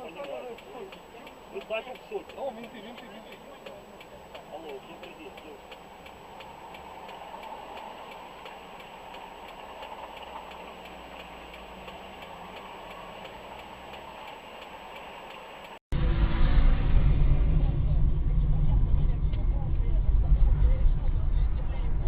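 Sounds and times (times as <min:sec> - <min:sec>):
car engine idling: 0:00.0 - 0:15.8.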